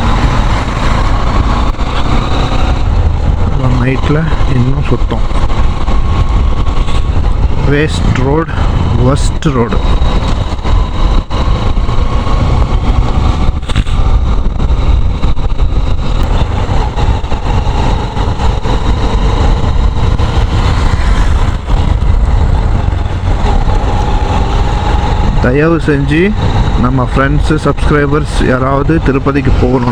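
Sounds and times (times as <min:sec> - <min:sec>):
motorcycle engine: 0:00.0 - 0:29.9
wind rumble on microphone: 0:00.0 - 0:29.9.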